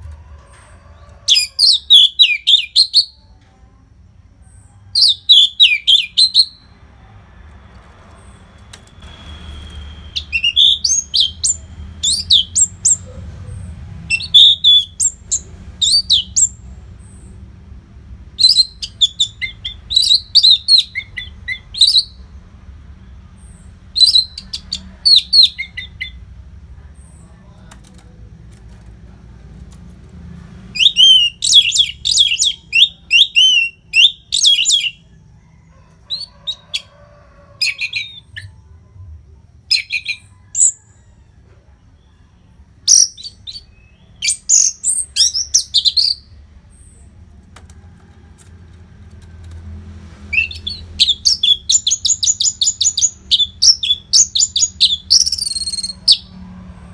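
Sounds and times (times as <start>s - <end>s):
thrush singing: 5.0s - 16.5s, 30.2s - 35.1s, 42.8s - 56.9s
faint low hum: 34.2s - 56.9s.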